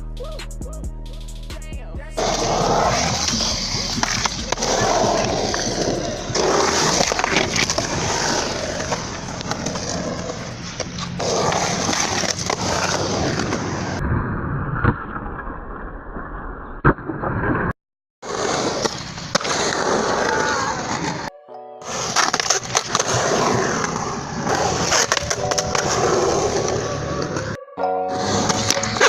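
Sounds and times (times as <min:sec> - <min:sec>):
skateboard wheels rolling on pavement: 0:02.2 - 0:14.0, 0:18.2 - 0:29.0.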